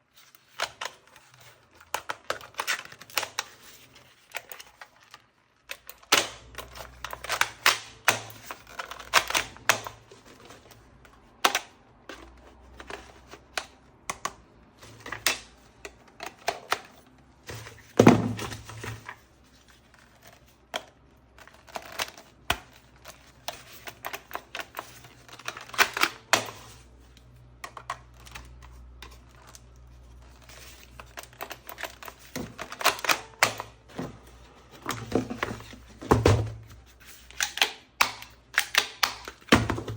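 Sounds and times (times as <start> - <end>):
plastic toy gun clicking: 37.3 - 39.7.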